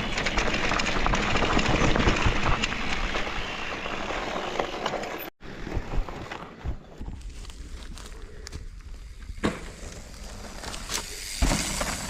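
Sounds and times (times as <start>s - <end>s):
tyres rushing on dirt: 0.0s - 5.9s
stones and bike rattling: 0.0s - 12.0s.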